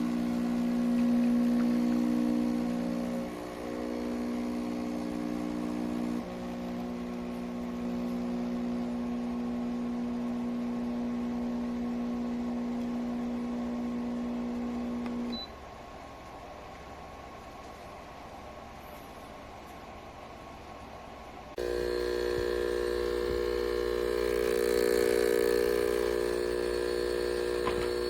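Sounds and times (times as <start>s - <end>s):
espresso machine pump humming: 0.0s - 15.4s, 21.6s - 28.0s.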